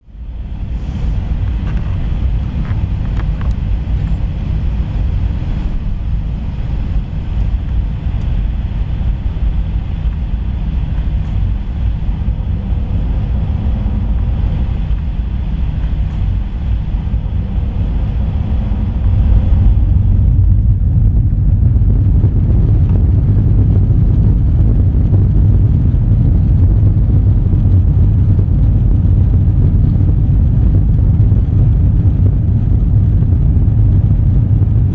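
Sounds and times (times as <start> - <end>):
airplane cabin rumble: 0.0 - 34.9.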